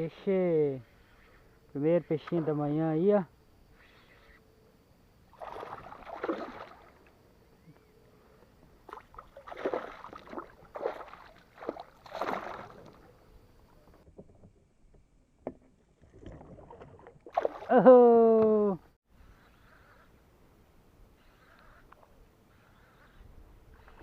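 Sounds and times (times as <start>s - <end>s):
water splashing: 5.3s - 7.1s, 8.8s - 13.4s, 16.0s - 18.0s.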